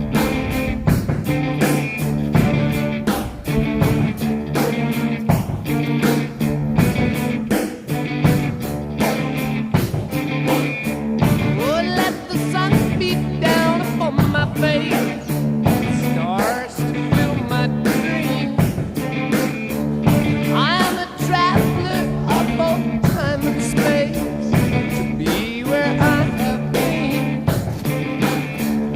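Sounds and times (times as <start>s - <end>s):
rock music with electric guitar: 0.0s - 28.9s
person singing: 11.4s - 19.1s, 20.4s - 28.7s.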